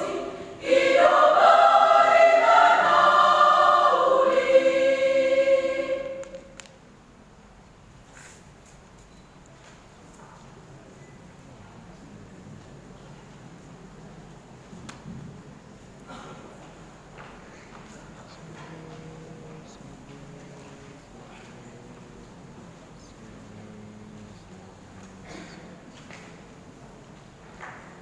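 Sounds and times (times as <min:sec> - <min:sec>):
choir singing in harmony: 0:00.0 - 0:06.7
soft hiss: 0:00.0 - 0:28.0.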